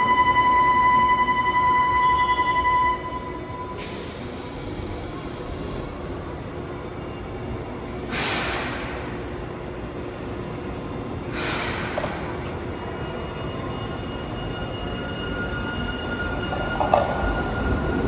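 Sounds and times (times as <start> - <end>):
streetcar low rumble: 0.0 - 18.0
compressed air hissing: 3.8 - 6.0, 8.1 - 9.2, 11.2 - 12.9.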